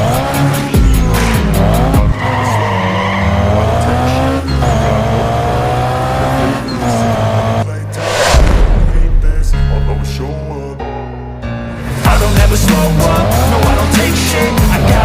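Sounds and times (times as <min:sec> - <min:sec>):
race car engine revving: 0:00.0 - 0:08.5, 0:12.4 - 0:15.0
background music with bass: 0:00.0 - 0:15.0
tyre screech: 0:01.2 - 0:04.8.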